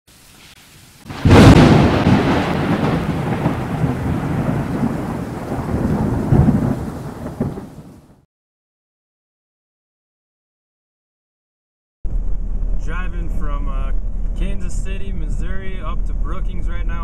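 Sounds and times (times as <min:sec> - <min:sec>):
loud crash: 0:01.1 - 0:07.7
rolling rumble: 0:12.1 - 0:17.0.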